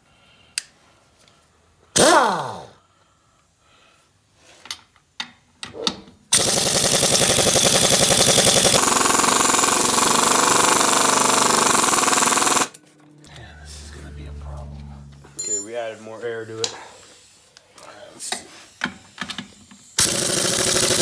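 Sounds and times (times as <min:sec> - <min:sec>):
air impact wrench hammering: 0:02.0 - 0:02.7, 0:06.3 - 0:12.8, 0:18.8 - 0:21.0
brief falling whine: 0:13.2 - 0:15.8.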